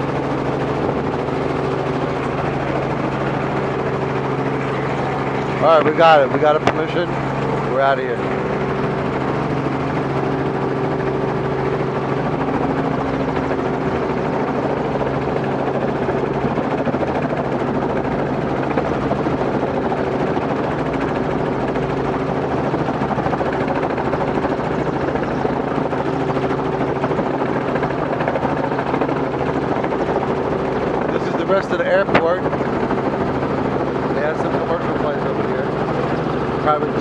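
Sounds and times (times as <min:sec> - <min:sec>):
helicopter engine and rotor drone: 0:00.0 - 0:37.0.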